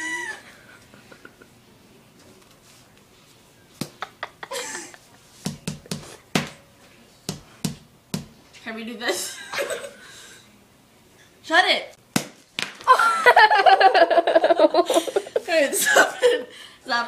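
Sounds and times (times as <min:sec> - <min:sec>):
person squealing or laughing: 0:00.0 - 0:00.5.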